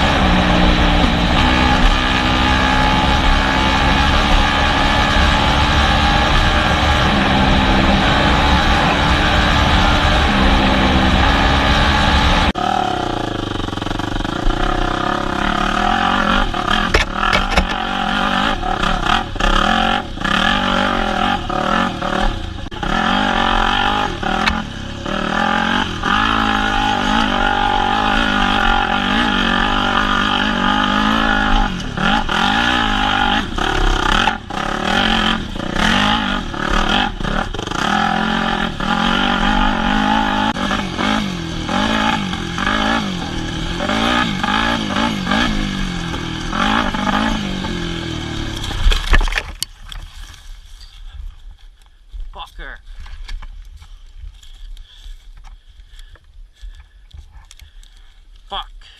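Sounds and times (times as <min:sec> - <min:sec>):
dirt bike engine revving: 0:00.0 - 0:49.4
steady sound: 0:00.0 - 0:50.7.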